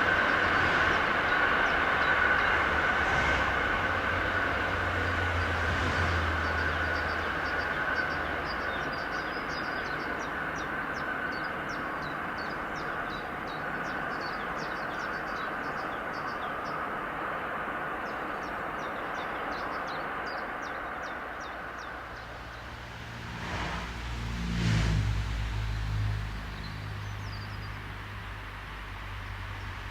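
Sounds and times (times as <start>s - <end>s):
train wheels on rails: 0.0s - 25.2s
small birds chirping: 26.5s - 28.4s.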